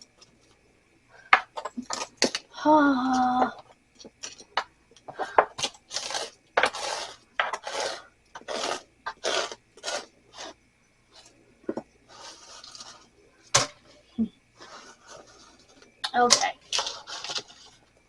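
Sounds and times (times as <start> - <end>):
scraper rasping on ice: 5.7 - 10.6, 12.1 - 13.1, 14.6 - 15.8, 16.6 - 17.9.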